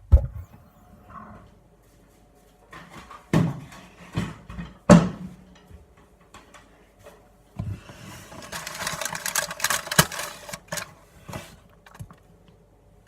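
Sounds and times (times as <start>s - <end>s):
wrapper crinkling: 8.4s - 10.9s.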